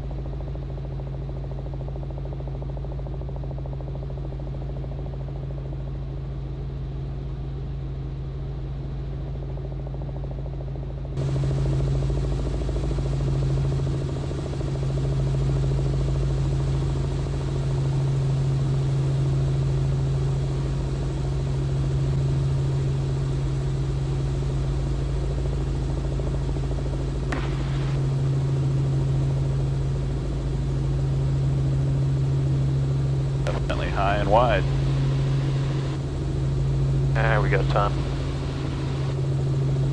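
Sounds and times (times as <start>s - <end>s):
helicopter engine and rotors droning: 0.0s - 39.9s.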